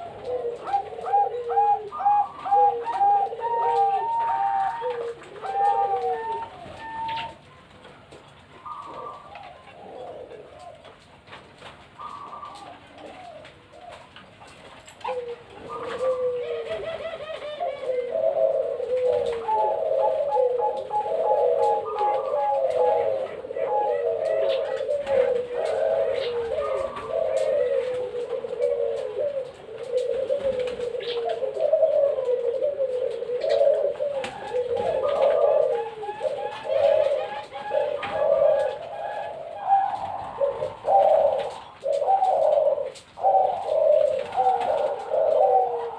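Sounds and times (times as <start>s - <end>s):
doves cooing: 0.0s - 45.9s.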